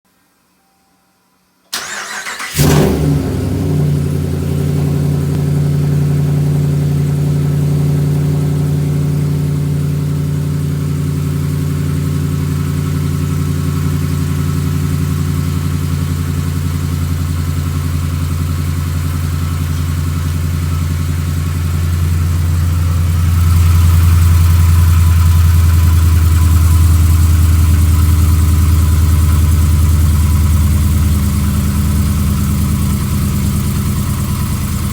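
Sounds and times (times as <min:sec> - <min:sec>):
engine starter cranking: 0:01.7 - 0:04.0
engine idling with knock: 0:02.7 - 0:34.9.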